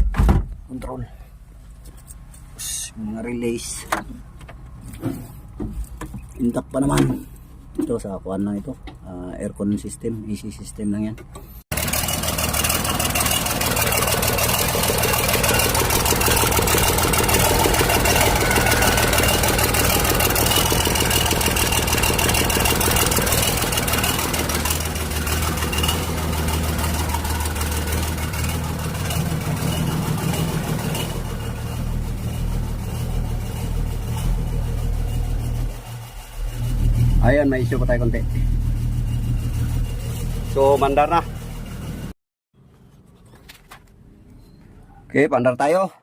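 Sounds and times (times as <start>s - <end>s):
excavator diesel engine running: 11.5s - 42.2s.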